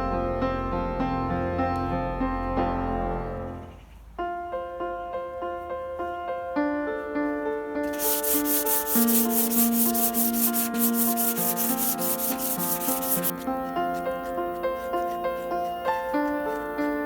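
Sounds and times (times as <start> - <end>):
piano music: 0.0 - 3.6, 4.3 - 17.0
hand sanding strokes: 7.9 - 17.0.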